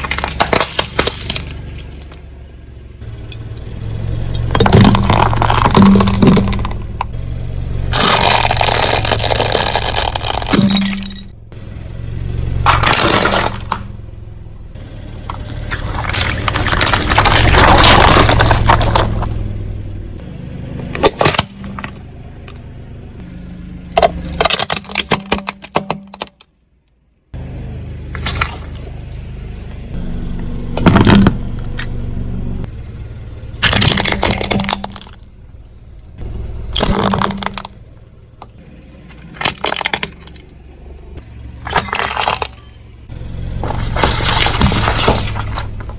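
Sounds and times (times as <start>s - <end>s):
objects cracking under tyre: 0.0s - 2.4s, 3.3s - 7.2s, 7.9s - 11.6s, 12.6s - 13.9s, 15.2s - 19.8s, 20.8s - 22.7s, 23.9s - 26.6s, 28.1s - 29.2s, 32.6s - 45.9s
car engine idling: 0.0s - 25.9s, 26.5s - 45.9s.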